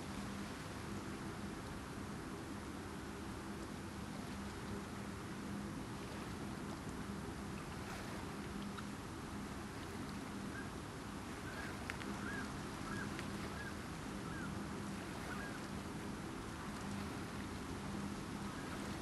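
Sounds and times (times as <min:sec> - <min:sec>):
bird calls: 0:11.4 - 0:14.6, 0:15.2 - 0:15.7.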